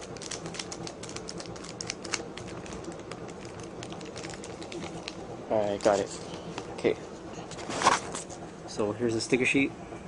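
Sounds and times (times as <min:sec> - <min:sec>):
plastic packaging crackling: 0:00.0 - 0:06.7.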